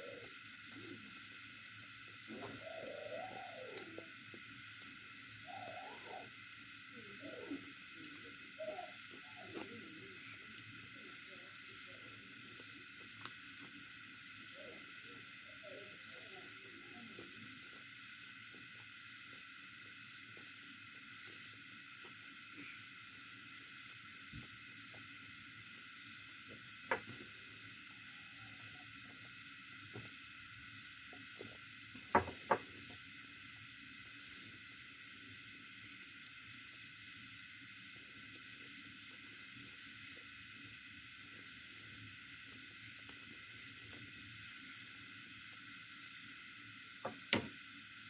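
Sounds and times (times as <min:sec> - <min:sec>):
insects chirping: 0:00.0 - 0:48.0.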